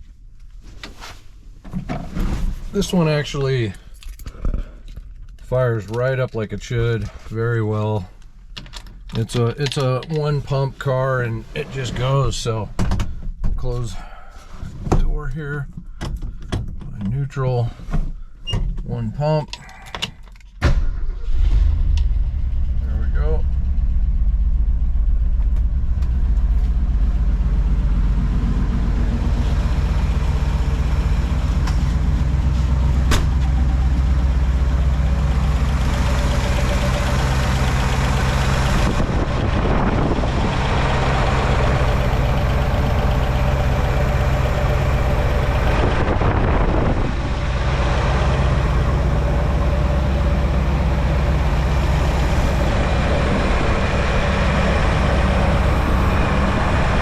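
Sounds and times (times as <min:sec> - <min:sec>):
car engine idling: 0:21.0 - 0:57.0.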